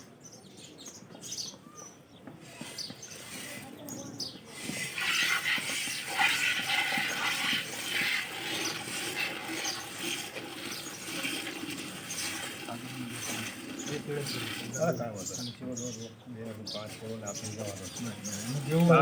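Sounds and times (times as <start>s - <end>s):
milk squirting into pail: 4.6s - 15.3s.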